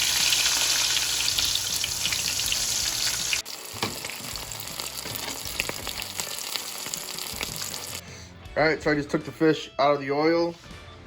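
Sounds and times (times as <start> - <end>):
fish deep-frying in oil: 0.0 - 8.0
oil crackles: 0.0 - 8.0.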